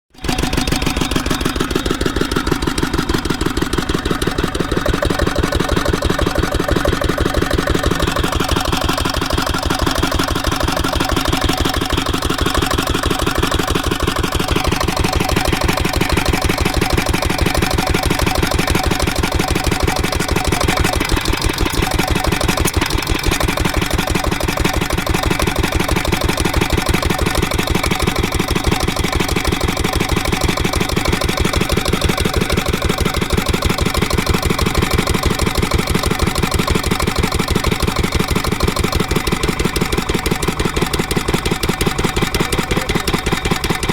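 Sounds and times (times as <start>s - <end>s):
diesel engine running fast: 0.1s - 43.9s.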